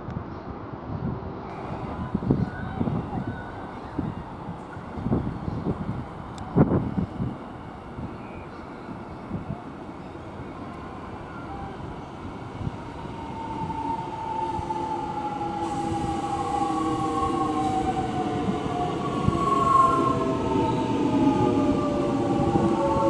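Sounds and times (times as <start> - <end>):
train rumble: 1.5 - 23.0.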